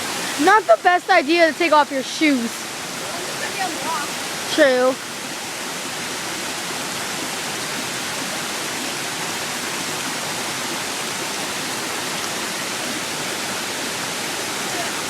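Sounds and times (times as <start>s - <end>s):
water rushing over waterfall: 0.0s - 15.0s.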